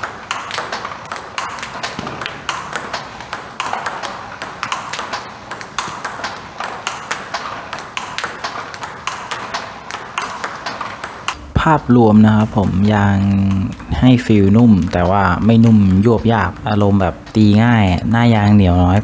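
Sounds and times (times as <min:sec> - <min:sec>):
table tennis ball clicks: 0:00.0 - 0:11.4, 0:12.1 - 0:19.0.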